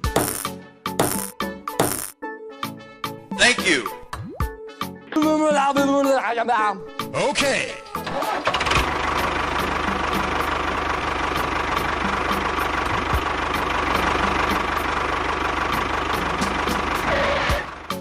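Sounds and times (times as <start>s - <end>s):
engine idling: 8.0s - 18.0s.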